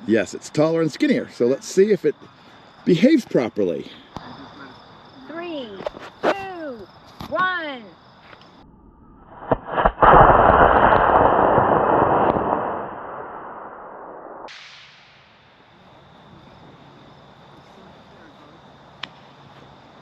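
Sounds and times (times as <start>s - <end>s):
rocket motor ignition pops: 9.4s - 12.9s.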